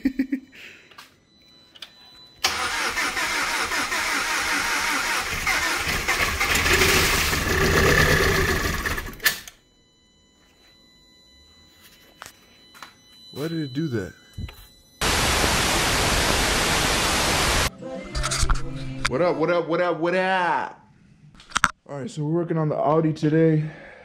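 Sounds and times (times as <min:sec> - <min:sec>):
car engine starting and running unevenly: 0:02.4 - 0:09.2.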